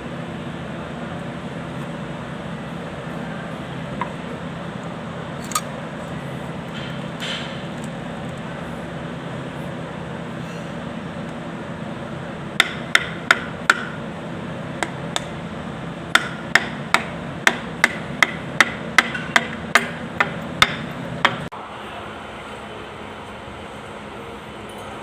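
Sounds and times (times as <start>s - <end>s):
steady low hum: 0.0s - 25.0s
hammer tapping on metal: 12.6s - 14.0s, 16.1s - 21.5s.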